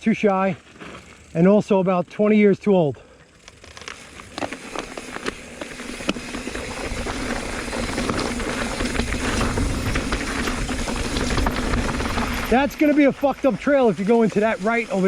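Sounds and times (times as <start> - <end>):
bike tyre noise: 0.0 - 15.0
bike clicks and rattles: 0.6 - 2.4, 3.0 - 15.0.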